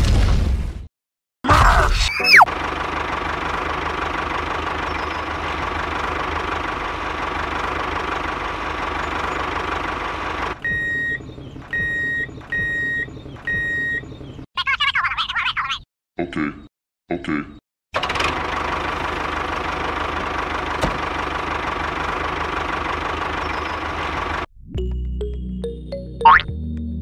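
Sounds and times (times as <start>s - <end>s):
diesel tractor engine: 2.3s - 14.5s, 18.0s - 24.5s
electronic reversing beeps: 10.6s - 14.2s.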